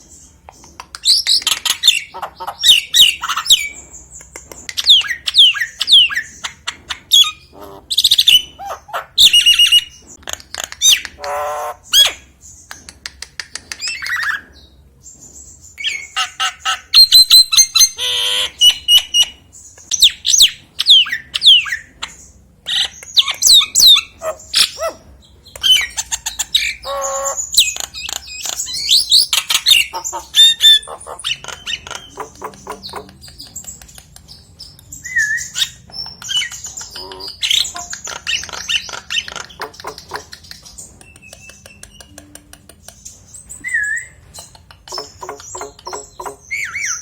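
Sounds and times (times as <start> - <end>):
myna singing whistles and squawks: 4.7 - 10.1, 35.0 - 42.3, 43.6 - 47.0.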